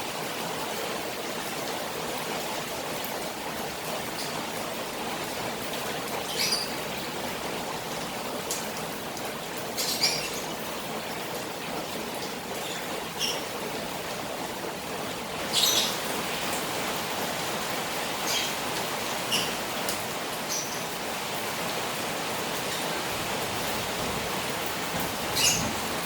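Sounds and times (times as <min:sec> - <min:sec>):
rain falling on a pond: 0:00.0 - 0:26.0
running water: 0:00.2 - 0:26.0.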